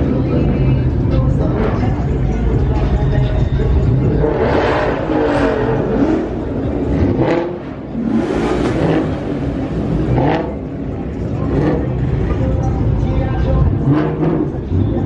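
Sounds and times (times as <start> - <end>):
car engines revving: 0.0 - 15.0
low engine rumble: 0.0 - 15.0
rushing noise: 7.5 - 11.7.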